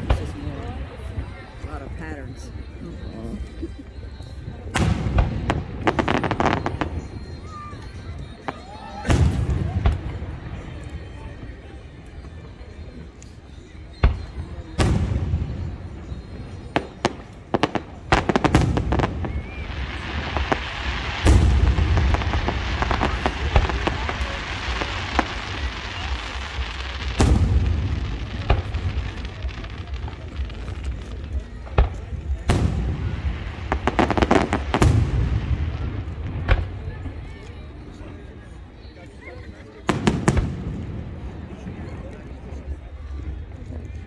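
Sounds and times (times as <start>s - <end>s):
fireworks bangs: 0.0s - 1.5s, 4.5s - 10.8s, 13.9s - 38.2s, 39.8s - 43.2s
fireworks crackling: 0.0s - 44.0s
firework shells booming: 14.0s - 31.0s, 31.7s - 36.9s.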